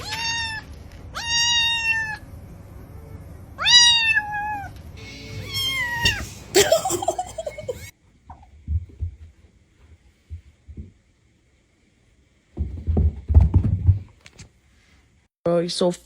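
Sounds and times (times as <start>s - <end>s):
cat meowing: 1.2s - 2.2s, 3.6s - 6.4s.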